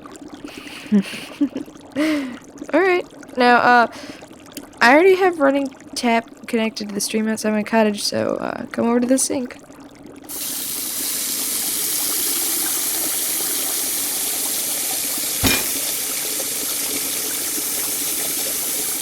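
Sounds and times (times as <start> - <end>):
water gushing from a tap: 0.0 - 19.0
knock: 15.4 - 15.8.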